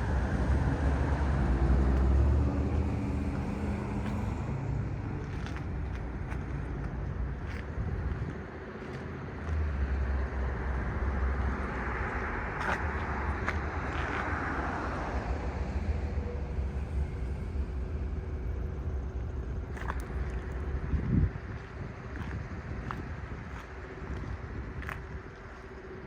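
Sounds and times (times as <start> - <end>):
vehicle passing by: 0.0 - 5.6
street traffic rumble: 0.0 - 26.0.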